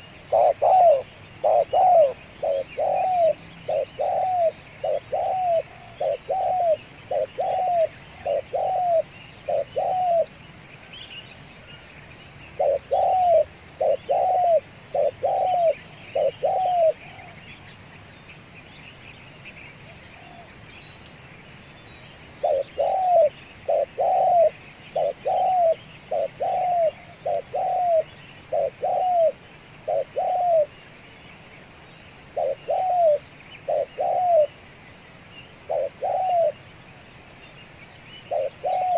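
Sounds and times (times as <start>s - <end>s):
dove cooing: 0.0s - 10.3s, 12.6s - 17.4s, 22.4s - 30.8s, 32.3s - 34.5s, 35.6s - 36.6s, 38.3s - 38.9s
birds chirping faintly: 0.0s - 38.9s.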